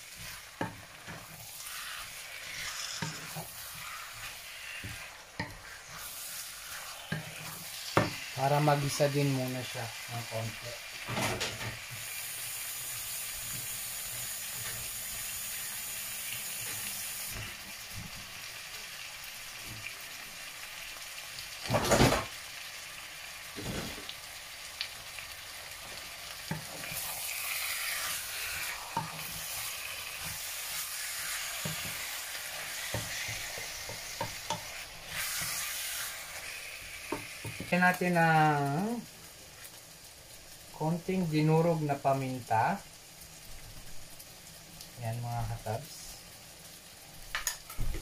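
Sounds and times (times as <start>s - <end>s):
wooden spatula stirring: 0.0s - 9.2s, 26.5s - 36.5s
chicken and onion sizzling in pan: 0.0s - 48.0s.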